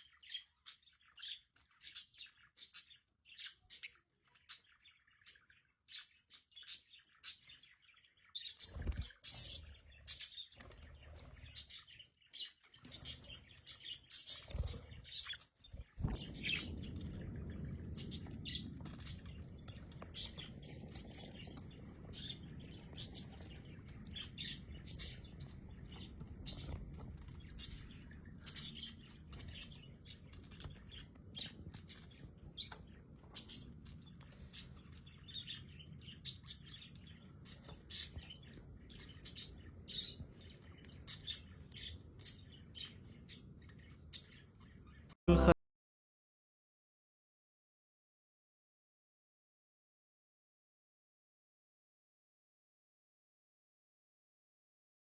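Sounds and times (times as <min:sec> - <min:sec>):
parrots chirping and chattering: 0:00.0 - 0:45.1
steady low rumble: 0:15.8 - 0:26.3.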